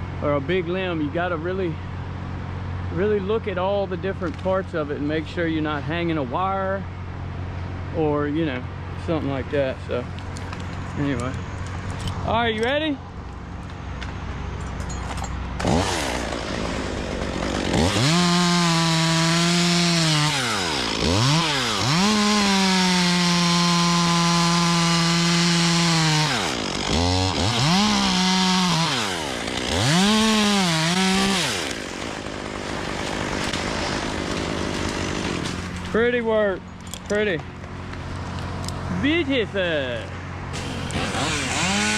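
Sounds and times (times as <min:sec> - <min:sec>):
chainsaw cutting wood: 0:15.6 - 0:36.0, 0:40.5 - 0:41.9.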